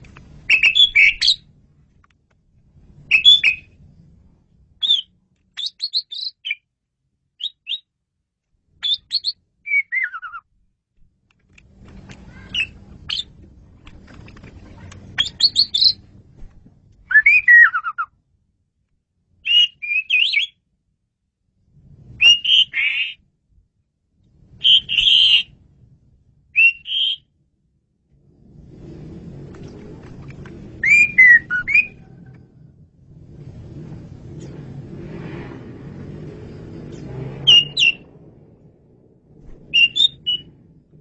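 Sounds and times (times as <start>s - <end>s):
faint low rumble: 0.0s - 5.9s, 10.4s - 19.5s, 20.6s - 22.5s, 23.1s - 26.6s, 27.2s - 41.0s
starling singing: 0.5s - 1.4s, 3.1s - 3.7s, 8.8s - 10.4s, 12.3s - 13.3s, 15.1s - 16.0s, 24.6s - 25.5s, 30.8s - 32.1s, 36.9s - 38.0s, 39.7s - 40.6s.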